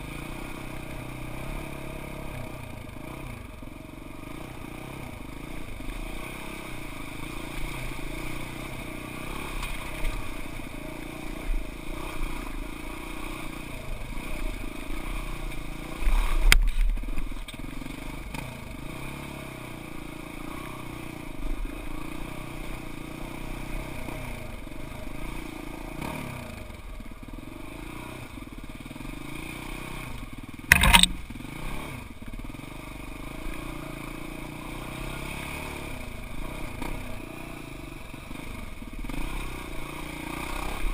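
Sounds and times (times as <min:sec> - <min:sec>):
utility vehicle engine running: 0:00.0 - 0:40.9
sharp loud knock: 0:30.7 - 0:31.2.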